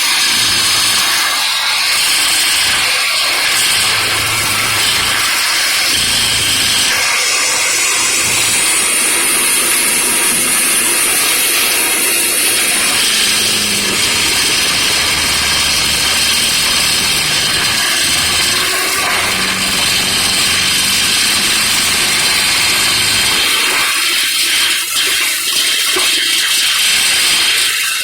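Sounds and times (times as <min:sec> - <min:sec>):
loud even hiss: 0:00.0 - 0:25.1
machinery engine humming: 0:03.6 - 0:05.2, 0:05.8 - 0:23.8.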